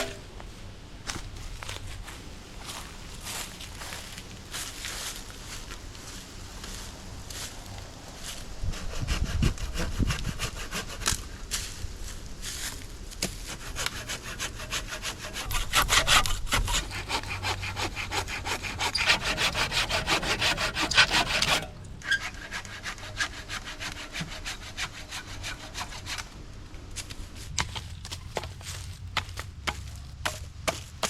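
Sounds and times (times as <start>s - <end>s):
hand saw cutting wood: 8.6s - 11.2s, 13.2s - 26.3s.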